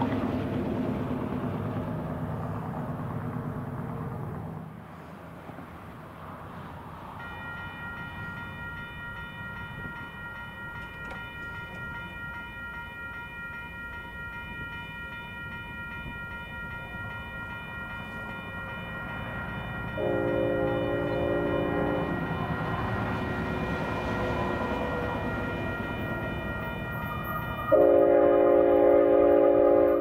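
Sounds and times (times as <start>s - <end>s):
freight train rumbling: 0.0s - 30.0s
crossing bell ringing: 7.2s - 30.0s.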